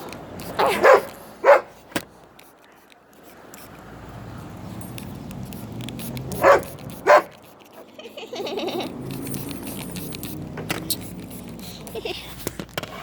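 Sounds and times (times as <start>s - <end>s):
dog barking: 0.6s - 1.8s, 6.3s - 7.4s.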